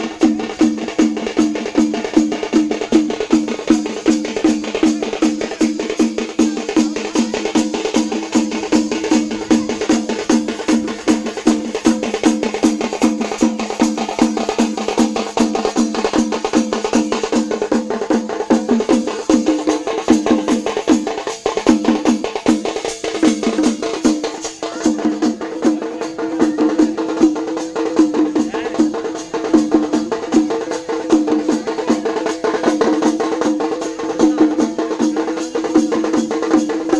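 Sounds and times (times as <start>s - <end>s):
rapid dense drumming: 0.0s - 36.9s.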